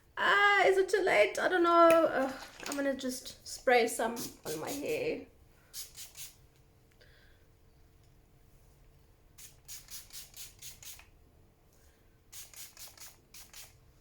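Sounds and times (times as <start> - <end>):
spray bottle hissing: 4.2 - 5.0, 5.7 - 6.4, 9.4 - 11.1, 12.3 - 13.8.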